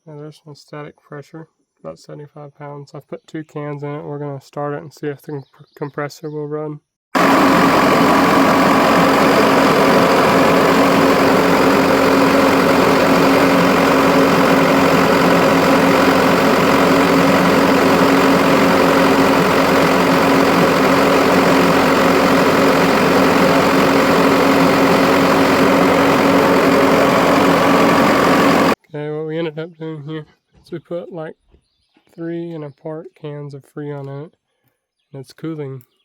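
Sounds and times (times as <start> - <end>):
diesel engine running: 7.2 - 28.8.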